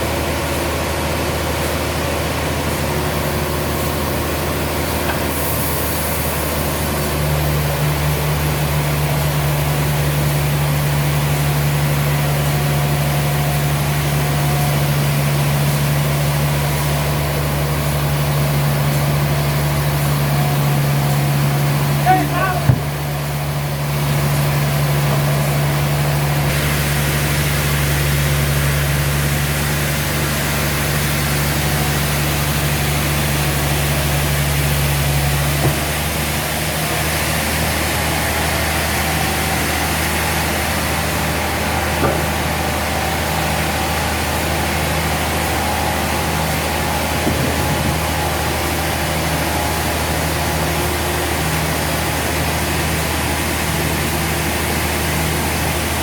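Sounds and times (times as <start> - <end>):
sawmill machinery humming: 0.0 - 56.0
faint knocks: 22.6 - 23.1.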